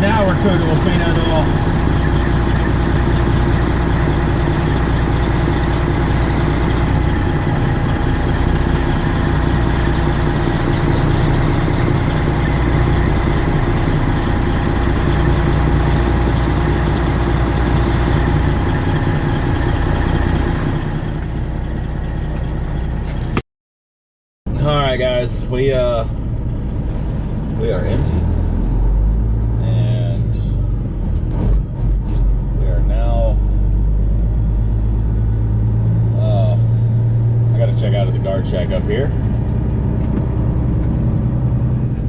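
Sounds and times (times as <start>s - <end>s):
truck diesel engine idling: 0.0s - 23.4s.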